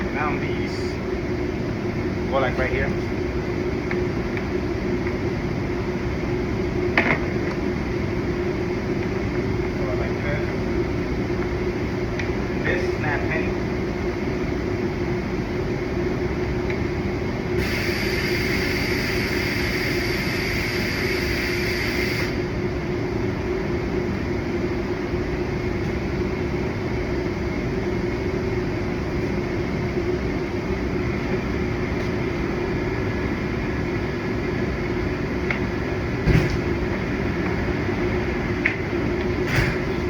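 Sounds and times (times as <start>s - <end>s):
ventilation unit humming: 0.0s - 40.0s
hiss: 17.6s - 22.4s.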